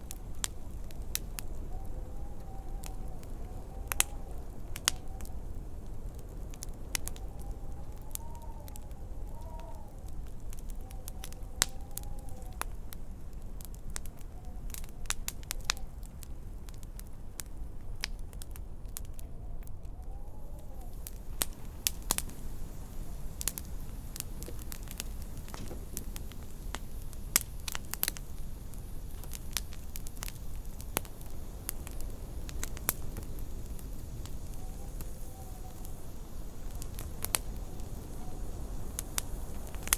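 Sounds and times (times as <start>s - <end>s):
faint wind whistle: 0.0s - 18.0s, 18.6s - 39.9s
low wind rumble: 0.0s - 39.9s
wood fire crackling and popping: 0.0s - 39.9s.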